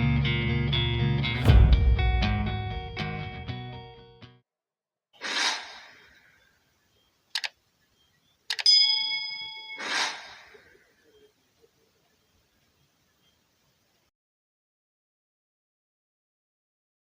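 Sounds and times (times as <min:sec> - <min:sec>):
whoosh sound effect: 0:01.3 - 0:03.0, 0:05.2 - 0:06.1, 0:09.8 - 0:10.6
clicks: 0:07.3 - 0:07.6
short bell-like ding: 0:08.7 - 0:09.8.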